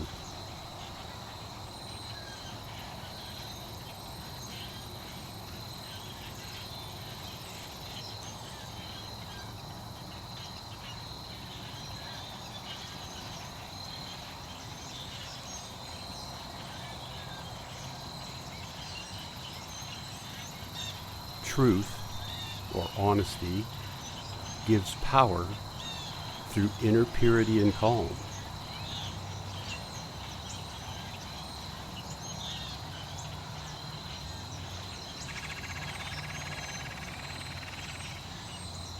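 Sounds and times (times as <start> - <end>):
faint chirps: 20.9 - 29.0
background hiss: 21.0 - 29.0.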